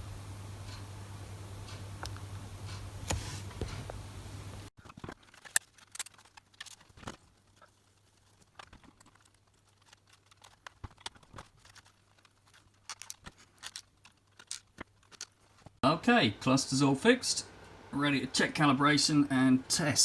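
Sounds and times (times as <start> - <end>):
faint steady hum: 0.0 - 4.7, 5.4 - 20.0
small hard parts clicking: 4.8 - 15.8.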